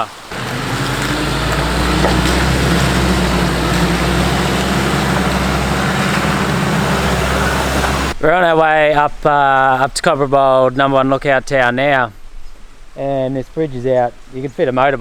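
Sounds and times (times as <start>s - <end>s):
truck engine droning: 0.3s - 8.2s
tyre and road noise: 0.3s - 8.2s.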